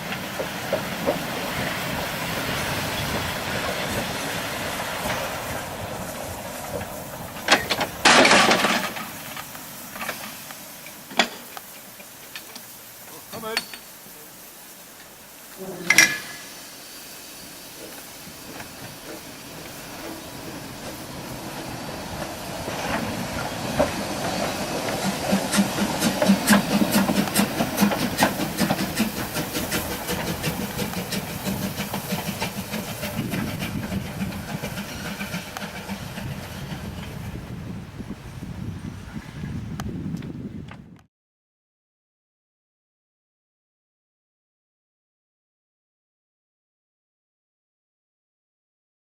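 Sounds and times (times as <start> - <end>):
train wheels clicking over rail joints: 0.0 - 38.6
steam hissing: 0.0 - 39.7.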